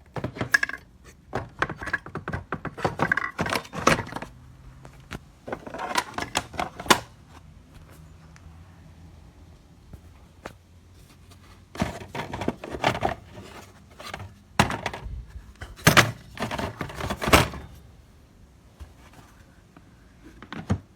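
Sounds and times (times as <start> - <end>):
knocks and rattling clatter: 0.0 - 4.3, 11.7 - 17.8.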